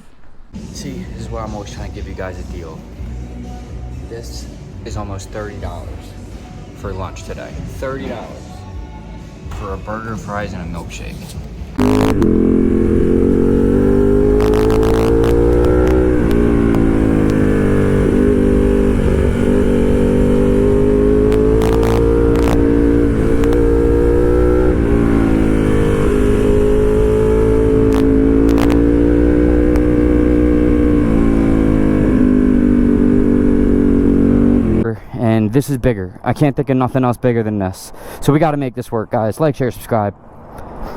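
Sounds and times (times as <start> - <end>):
vehicle engine running: 11.8 - 34.8.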